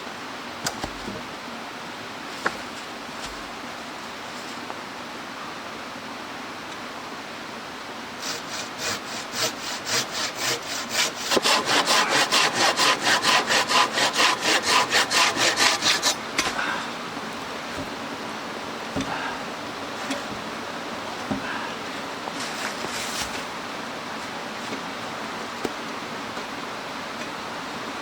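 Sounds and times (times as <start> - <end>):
hand saw cutting wood: 8.2 - 16.6.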